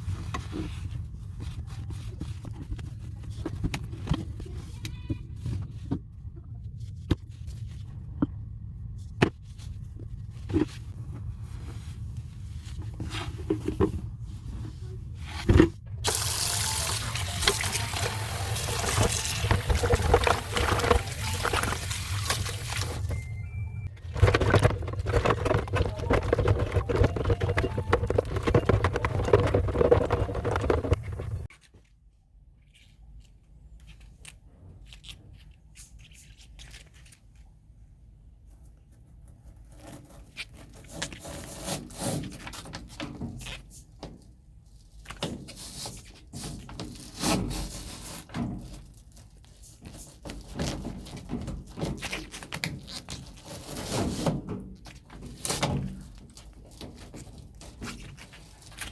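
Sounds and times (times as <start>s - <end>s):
scraping and rubbing while cleaning: 9.4s - 23.2s, 23.8s - 31.5s, 45.3s - 58.9s.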